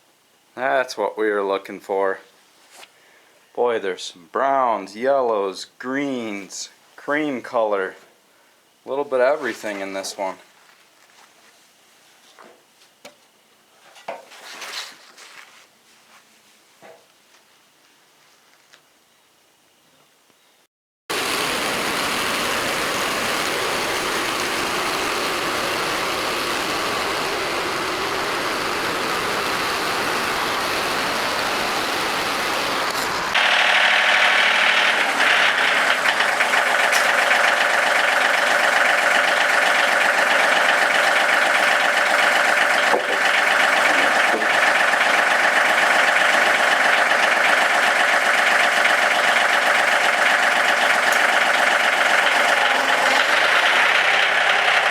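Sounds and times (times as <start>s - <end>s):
band sawmill cutting log: 21.1s - 54.9s.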